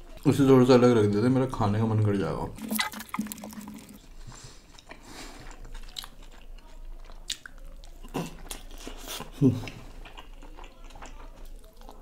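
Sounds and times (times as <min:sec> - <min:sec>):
chewing food: 0:02.6 - 0:12.0.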